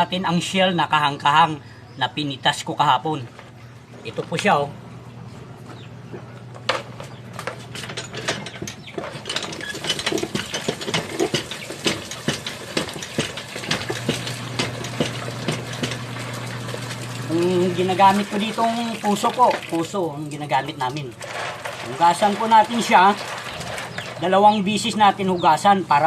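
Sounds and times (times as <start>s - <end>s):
steady low hum: 0.0s - 22.0s
seashells clicking and clattering: 21.2s - 24.2s.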